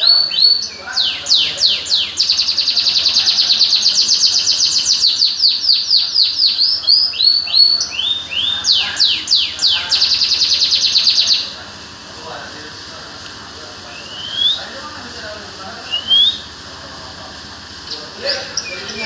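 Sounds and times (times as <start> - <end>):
songbird singing trills: 0.0 - 11.6, 13.7 - 14.8, 15.8 - 16.6, 17.7 - 19.0.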